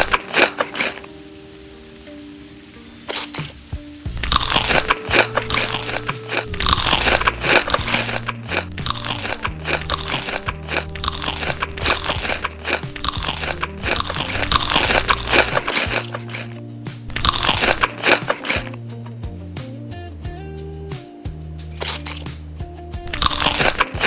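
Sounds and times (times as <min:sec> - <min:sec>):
crunchy food being chewed: 0:00.0 - 0:01.1, 0:04.2 - 0:18.8, 0:21.8 - 0:22.2, 0:23.1 - 0:24.0.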